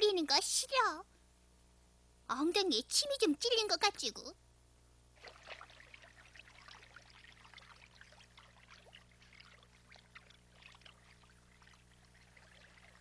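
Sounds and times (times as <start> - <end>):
faint trickling water: 5.2 - 13.0.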